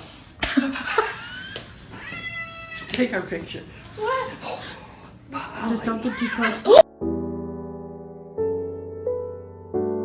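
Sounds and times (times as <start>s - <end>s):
soft piano chords: 6.8s - 10.0s.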